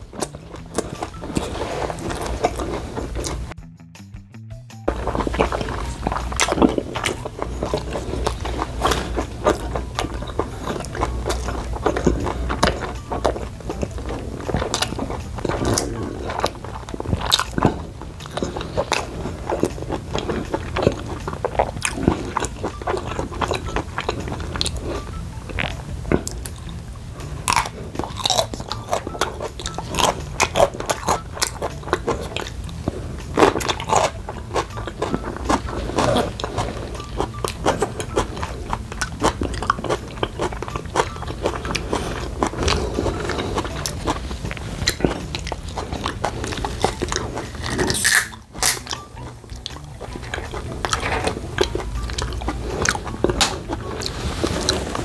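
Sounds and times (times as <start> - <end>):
chewing and crunching food: 0.0 - 3.6, 4.9 - 55.0
steady low hum: 0.0 - 3.6, 4.9 - 55.0
wet mouth clicks: 4.9 - 54.1.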